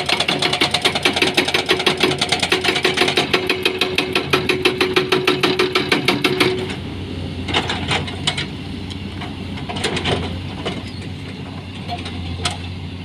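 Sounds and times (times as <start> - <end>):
low engine hum: 5.6 - 13.0.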